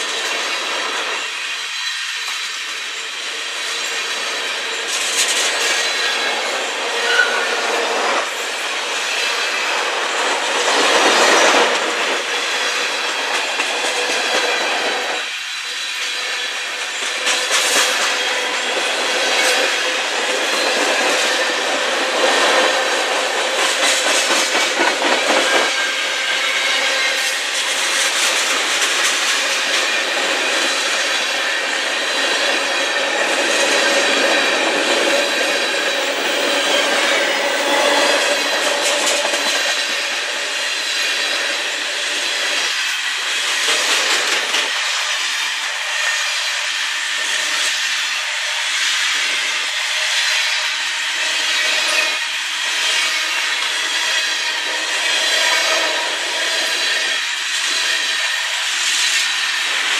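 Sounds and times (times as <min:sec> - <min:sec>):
freight train wheels clacking: 0:00.0 - 0:59.9
wheel squeal: 0:06.9 - 0:07.6, 0:29.8 - 0:41.3.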